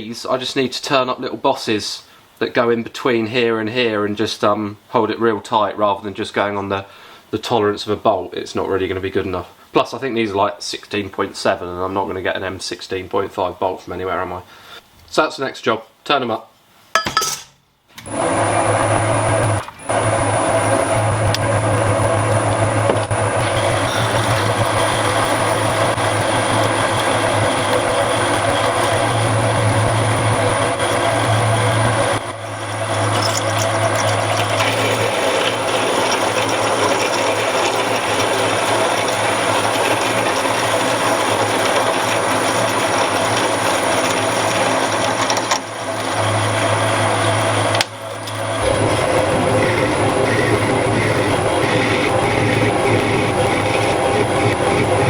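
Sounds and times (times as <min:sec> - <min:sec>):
lathe motor hum: 0:18.1 - 0:55.0
metal machining noise: 0:18.1 - 0:55.0.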